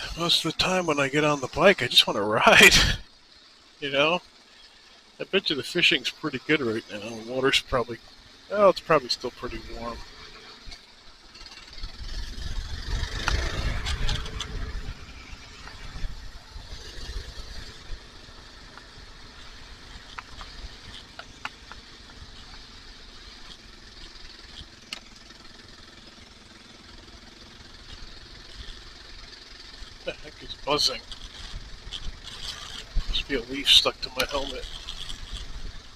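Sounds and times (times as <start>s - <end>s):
motorcycle engine running: 0.0s - 35.9s
wind rushing over microphone: 11.8s - 18.3s.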